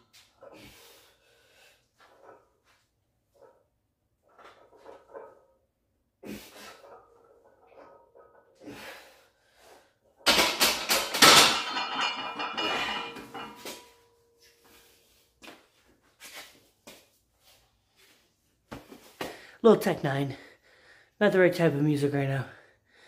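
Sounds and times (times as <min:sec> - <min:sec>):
weight plates clanking: 0:10.2 - 0:14.0.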